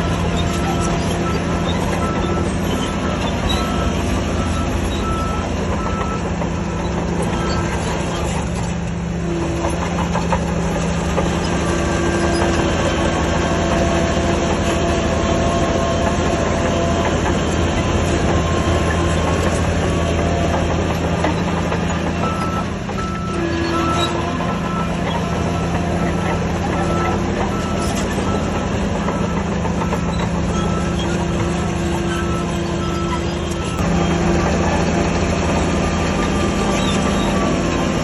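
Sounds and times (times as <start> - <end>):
reversing alarm beeping: 0.0 - 7.8, 22.2 - 34.2
diesel engine running: 0.0 - 38.0.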